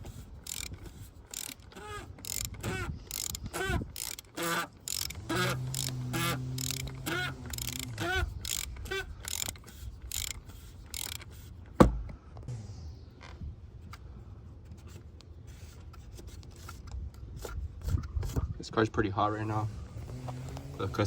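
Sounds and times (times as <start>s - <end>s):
socket ratchet clicking: 0.0s - 11.3s.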